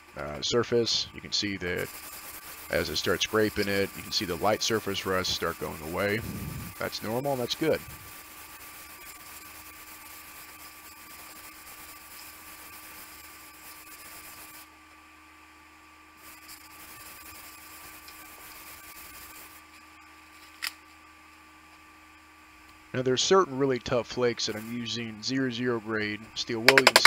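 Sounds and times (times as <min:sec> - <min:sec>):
low electrical hum: 0:00.0 - 0:27.0
sandpaper rubbing on steel: 0:01.7 - 0:14.6
sharp click: 0:26.7 - 0:27.0.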